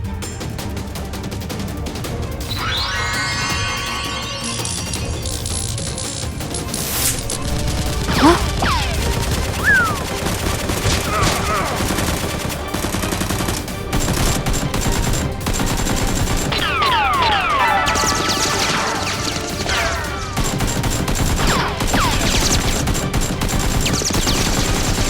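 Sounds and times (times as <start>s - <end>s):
falling whistling sweeps: 2.5s - 5.8s, 9.6s - 10.1s
rapid gunfire: 6.7s - 25.0s.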